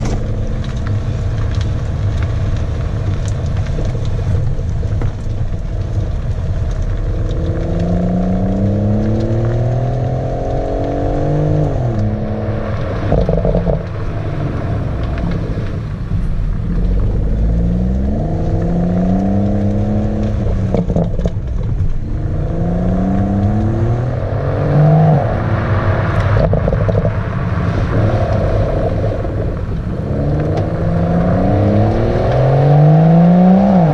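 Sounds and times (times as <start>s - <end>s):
car engine accelerating: 0.0s - 33.9s
exhaust cracks: 0.0s - 33.9s.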